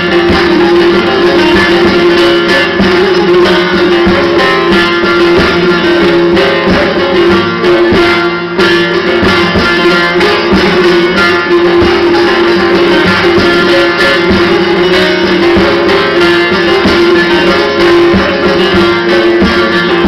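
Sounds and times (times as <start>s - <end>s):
plucked string instrument music: 0.0s - 20.0s.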